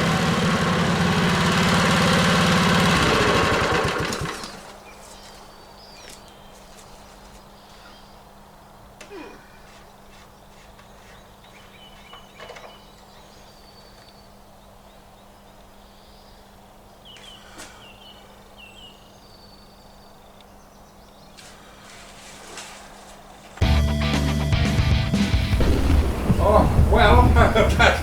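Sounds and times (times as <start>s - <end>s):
birds chirping: 0.0s - 22.4s, 23.2s - 28.0s
steady low hum: 25.4s - 28.0s.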